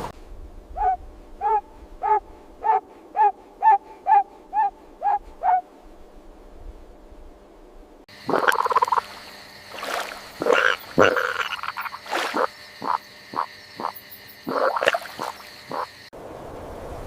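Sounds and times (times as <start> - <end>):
frog croaking: 8.1 - 16.1.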